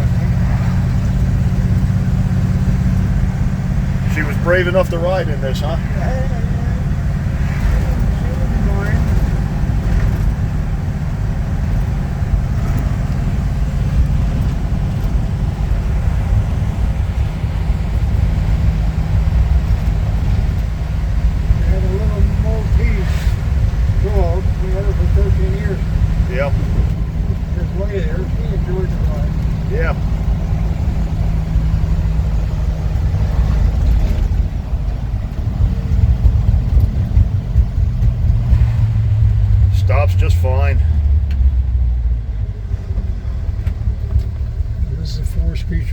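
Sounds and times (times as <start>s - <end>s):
road noise rumble: 0.0s - 45.9s
truck engine running: 0.0s - 45.9s.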